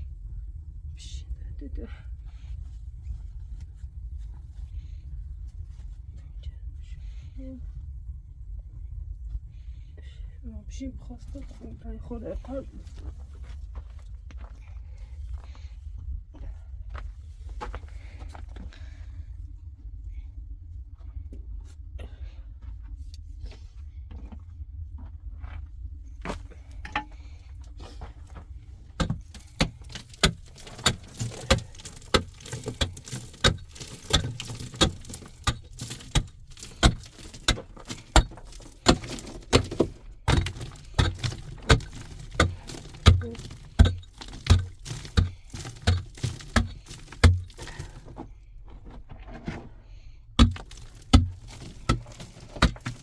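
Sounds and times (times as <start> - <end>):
sharp knocks: 29.0 - 48.1, 50.4 - 53.0.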